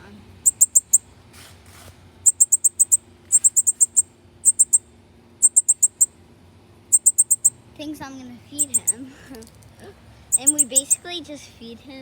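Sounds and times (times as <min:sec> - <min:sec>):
young bird chipping: 0:00.4 - 0:01.1, 0:02.2 - 0:06.1, 0:06.9 - 0:07.6, 0:08.6 - 0:09.1, 0:10.3 - 0:11.1.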